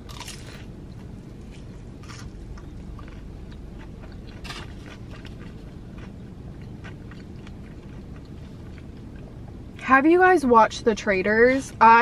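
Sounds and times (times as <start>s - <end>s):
person chewing crisp food: 0.0s - 9.6s
low background hum: 0.0s - 12.0s.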